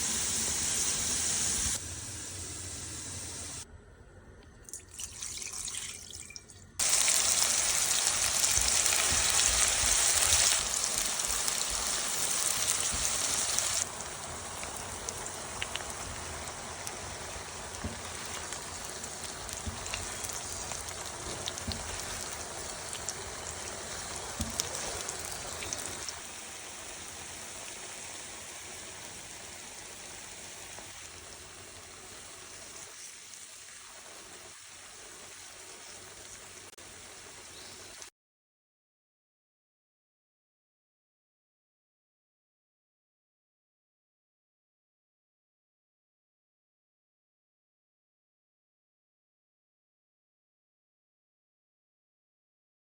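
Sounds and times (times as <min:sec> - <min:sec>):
potatoes sizzling in oil: 0:00.0 - 0:03.6, 0:06.8 - 0:38.1.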